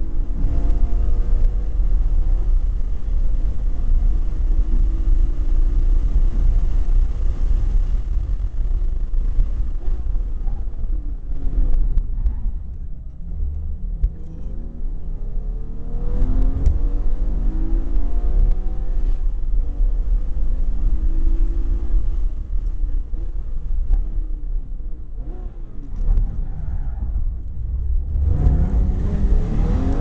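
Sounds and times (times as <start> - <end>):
car engine accelerating: 0.0 - 30.0
heavy low cabin rumble: 6.5 - 15.1, 22.2 - 30.0.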